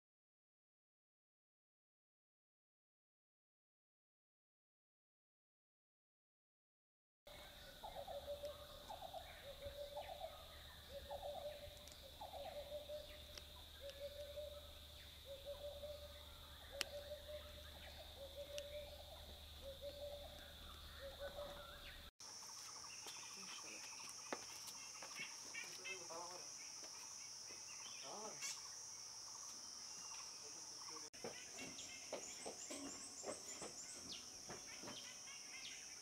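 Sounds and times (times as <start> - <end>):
bird hooting call: 7.3 - 22.1.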